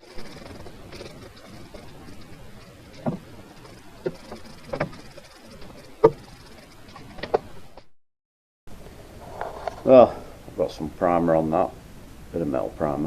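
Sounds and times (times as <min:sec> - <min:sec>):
low background hiss: 0:09.8 - 0:13.0.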